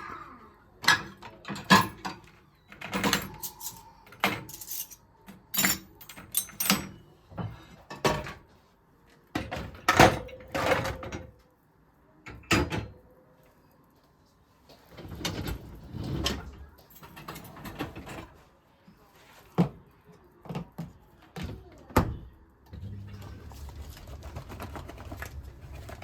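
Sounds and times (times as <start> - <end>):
kitchenware knocks and clinks: 0.8 - 5.0.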